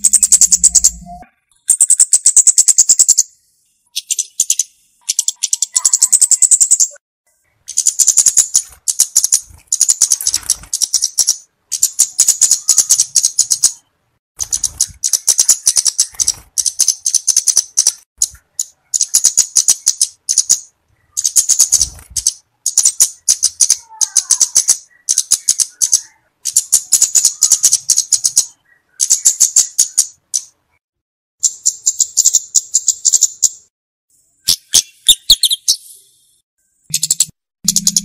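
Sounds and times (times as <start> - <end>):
bird rattling trills: 0.0 - 3.3, 7.7 - 13.8, 14.4 - 30.5, 36.9 - 38.0.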